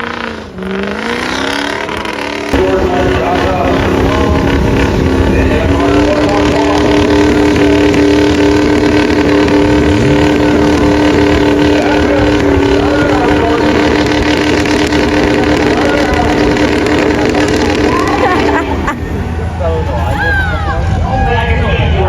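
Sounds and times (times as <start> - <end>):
diesel engine at high revs: 0.0 - 22.0.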